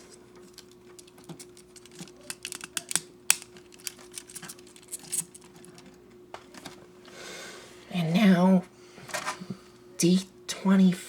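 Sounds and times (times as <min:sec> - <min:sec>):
faint steady hum: 0:00.0 - 0:11.0
plastic parts clicking: 0:00.4 - 0:05.9.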